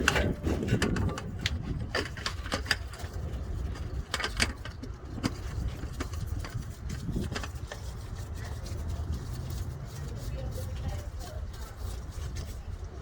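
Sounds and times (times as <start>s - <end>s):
part being threaded in: 0.0s - 8.6s.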